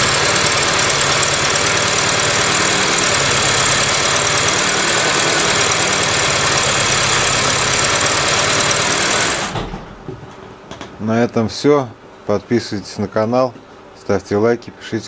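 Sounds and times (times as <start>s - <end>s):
petrol engine running: 0.0s - 9.7s.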